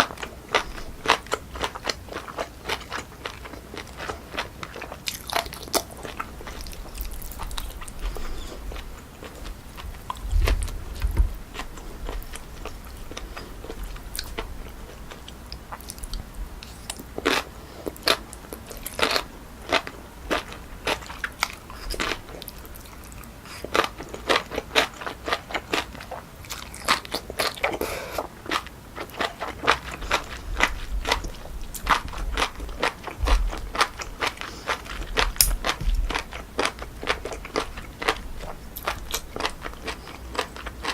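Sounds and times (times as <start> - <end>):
crunchy chewing: 0.0 - 40.9
soft low thumps: 9.8 - 12.3, 30.5 - 34.2, 34.9 - 36.3.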